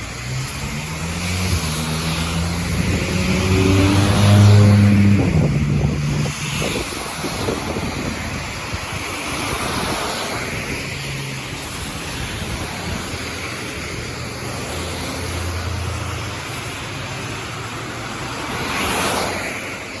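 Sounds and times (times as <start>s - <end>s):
low engine hum: 0.0s - 9.0s
rain hissing: 0.0s - 20.0s
vehicle swishing past on wet road: 0.0s - 20.0s.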